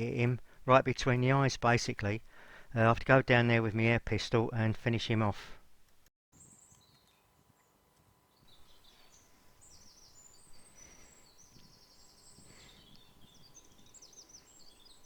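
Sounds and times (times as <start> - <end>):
faint birdsong with trills: 6.4 - 15.0.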